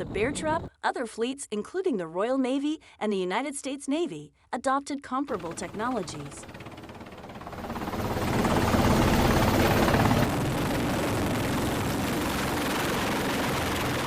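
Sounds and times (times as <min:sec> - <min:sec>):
helicopter rotor chop: 0:05.3 - 0:14.0.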